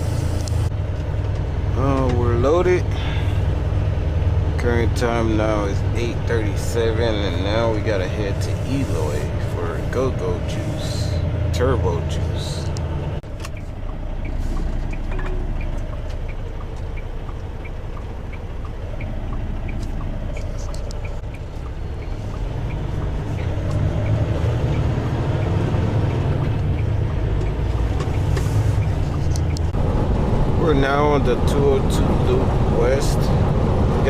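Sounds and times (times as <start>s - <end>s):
road noise: 0.0s - 34.0s
truck diesel engine rumble: 0.0s - 34.0s
light ticking: 12.6s - 29.8s.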